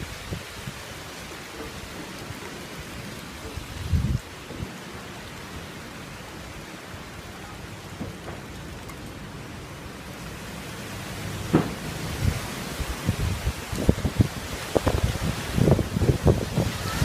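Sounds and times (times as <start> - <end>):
rain falling: 0.0 - 17.0
thunder rumble: 10.9 - 17.0.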